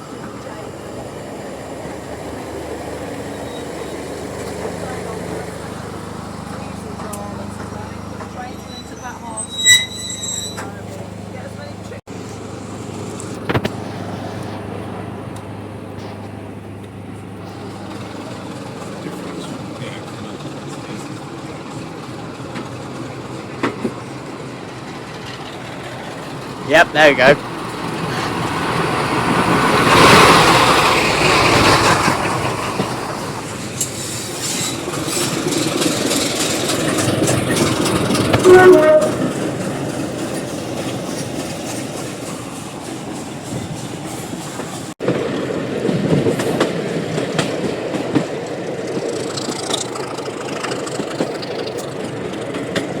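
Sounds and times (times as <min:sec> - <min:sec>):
diesel train engine idling: 0:00.0 - 0:53.0
wheels clacking over rail joints: 0:01.9 - 0:26.7, 0:27.4 - 0:53.0
train horn tone: 0:38.3 - 0:39.3.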